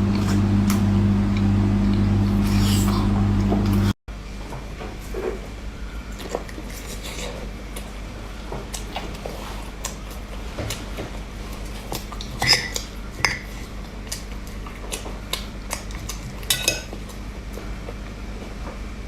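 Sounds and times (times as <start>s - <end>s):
utensils clinking against dishes: 12.1s - 13.7s, 16.0s - 17.0s.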